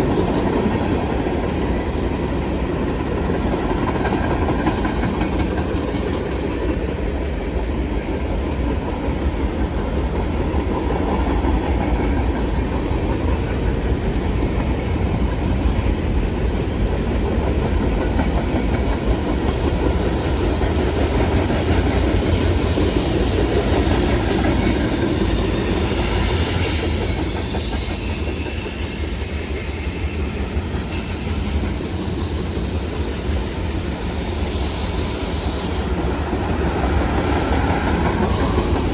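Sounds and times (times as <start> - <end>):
train wheels rumbling and clattering: 0.0 - 38.9
high wheel squeal: 23.0 - 36.1.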